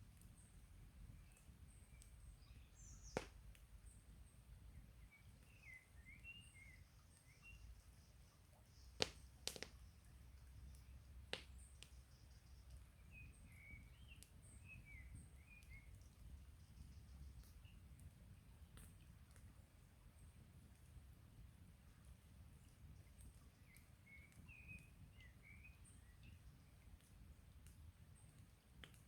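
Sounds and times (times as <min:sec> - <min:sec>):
small birds chirping: 0:00.0 - 0:20.4, 0:22.0 - 0:29.0
campfire wood crackling pops: 0:00.2 - 0:04.1, 0:08.7 - 0:19.5, 0:26.9 - 0:29.0.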